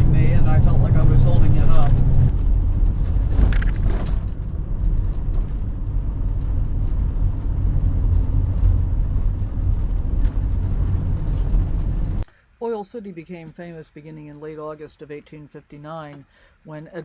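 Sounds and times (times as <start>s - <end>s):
road noise: 0.0s - 12.3s
vehicle engine rumble: 0.0s - 12.3s.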